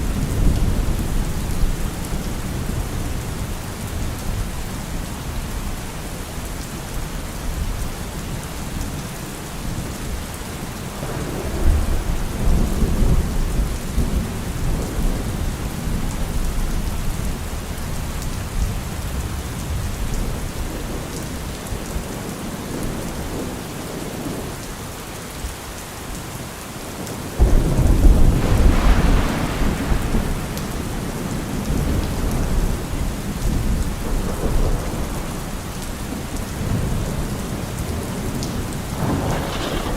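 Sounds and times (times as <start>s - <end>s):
steady rain: 0.0s - 39.9s
thunder rumbling: 11.0s - 21.1s, 27.2s - 39.9s.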